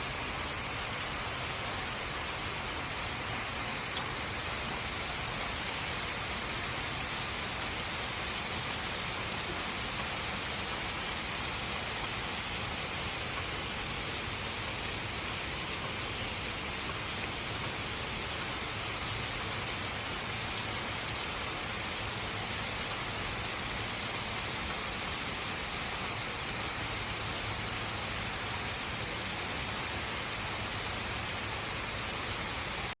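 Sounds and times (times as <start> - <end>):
rain falling: 0.0 - 33.0.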